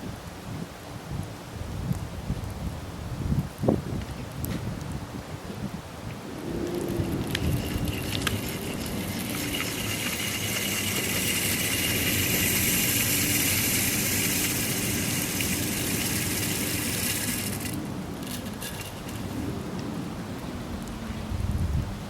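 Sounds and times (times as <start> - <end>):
high hiss and whine: 6.2 - 20.4
truck engine under load: 6.6 - 19.6.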